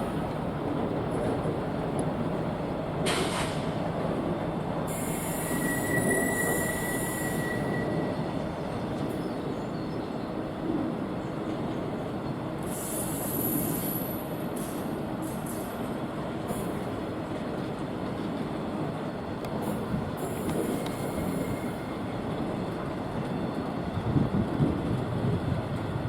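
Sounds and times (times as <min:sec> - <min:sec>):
train wheels rumbling on rails: 0:00.0 - 0:26.0
high wheel squeal: 0:04.9 - 0:08.3.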